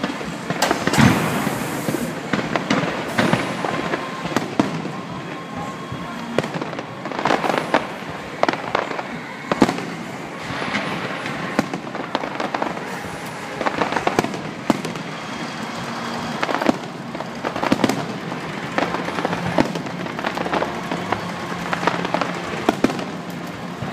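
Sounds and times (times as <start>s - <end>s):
firework shells bursting: 0.0s - 5.1s
fireworks crackling: 0.0s - 23.9s.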